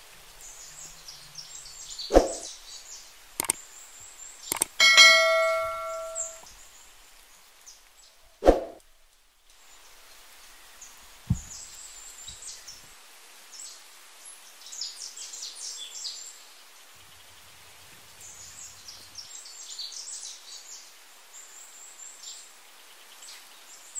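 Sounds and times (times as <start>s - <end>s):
small birds chirping: 0.4s - 6.4s.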